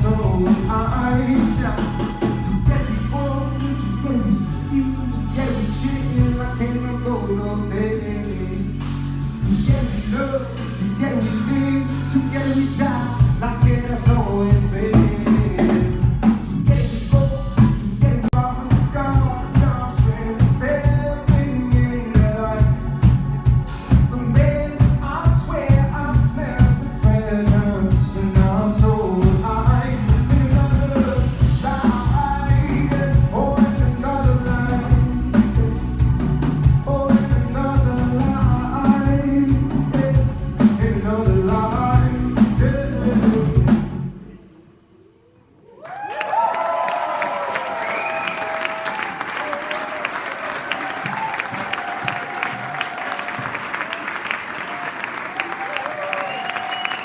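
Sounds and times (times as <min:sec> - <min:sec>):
steady drum beat: 0:00.0 - 0:03.9, 0:08.8 - 0:44.1
man singing: 0:00.0 - 0:44.1
instrumental backing: 0:00.0 - 0:44.2.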